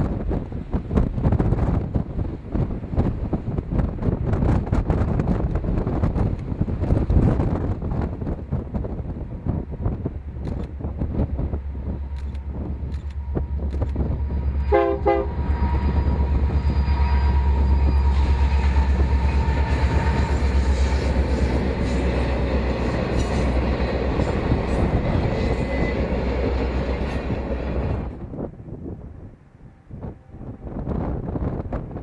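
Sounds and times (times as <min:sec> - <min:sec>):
passing train rumble: 0:00.0 - 0:32.0
train horn blasts: 0:13.2 - 0:31.4.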